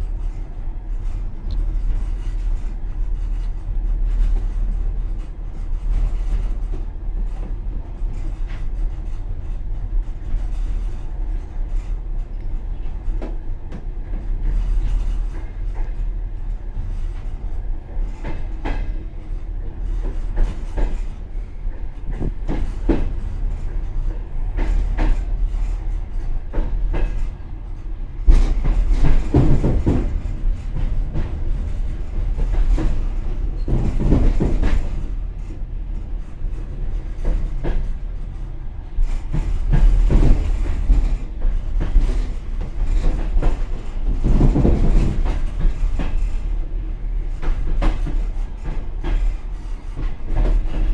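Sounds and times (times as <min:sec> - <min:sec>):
train car rumble: 0:00.0 - 0:50.9
wheels clacking over rail joints: 0:16.9 - 0:50.9.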